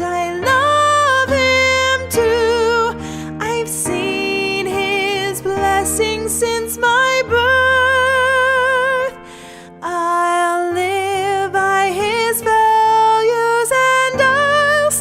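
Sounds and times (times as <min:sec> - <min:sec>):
woman singing with vibrato: 0:00.0 - 0:09.2, 0:09.8 - 0:15.0
soft breath: 0:09.2 - 0:09.8.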